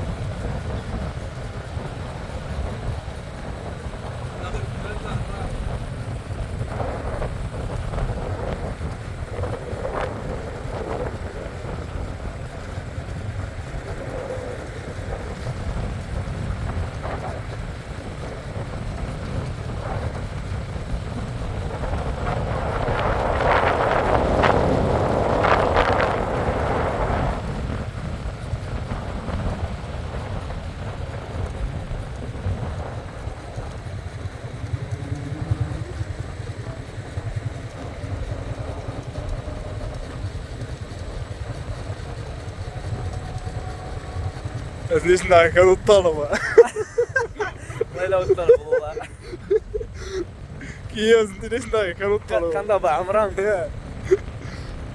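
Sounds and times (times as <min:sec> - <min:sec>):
wind noise on microphone: 0:00.0 - 0:54.9.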